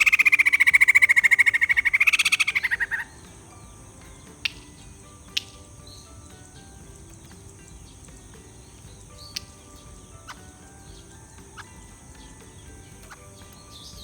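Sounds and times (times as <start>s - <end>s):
high bird chirps: 0.0s - 14.0s
steady background hiss: 0.0s - 14.0s
sharp clicks: 4.2s - 5.8s.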